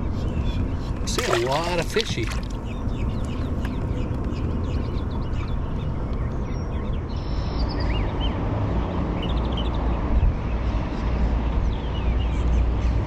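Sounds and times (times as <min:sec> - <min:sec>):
birds chirping: 0:00.0 - 0:07.5.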